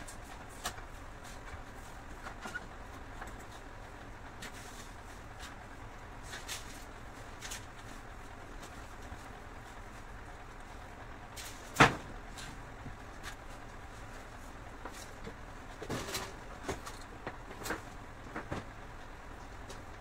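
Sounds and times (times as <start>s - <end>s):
steady low hum: 0.0s - 20.0s
knocks and clicks of objects handled: 14.8s - 18.8s.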